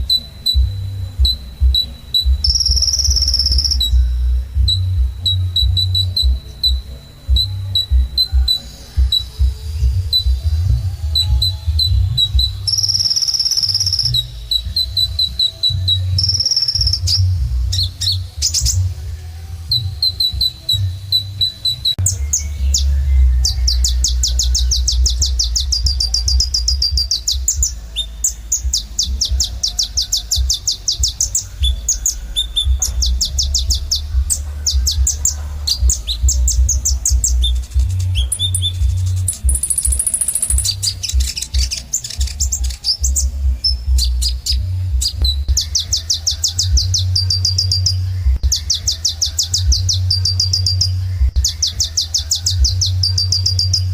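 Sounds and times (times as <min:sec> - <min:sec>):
bird chirping and trilling: 0:00.0 - 0:18.9, 0:19.7 - 0:53.9
low rumble: 0:21.9 - 0:46.1.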